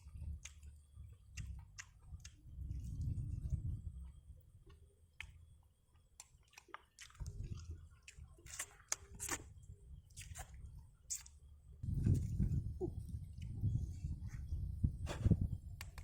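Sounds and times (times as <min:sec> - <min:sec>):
person chewing: 0:00.0 - 0:03.5, 0:04.6 - 0:09.5, 0:10.1 - 0:11.4
wet mouth smacks: 0:01.4 - 0:02.4.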